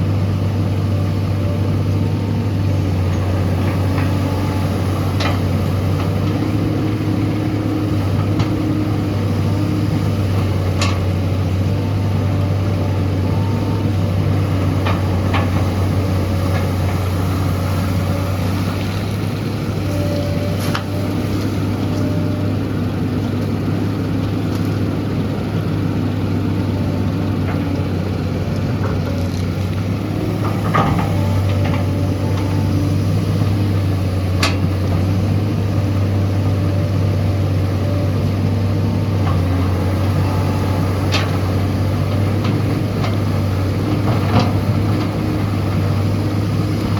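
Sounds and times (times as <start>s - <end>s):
excavator diesel engine humming: 0.0s - 46.9s.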